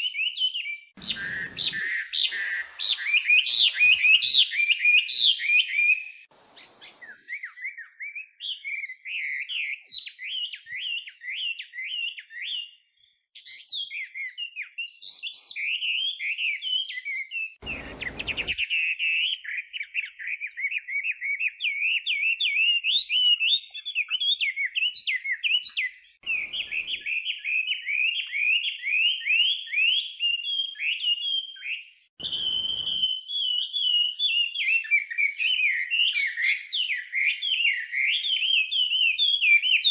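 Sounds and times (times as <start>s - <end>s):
bird singing whistled phrases: 0.0s - 39.9s
brief loud noise: 17.6s - 18.6s.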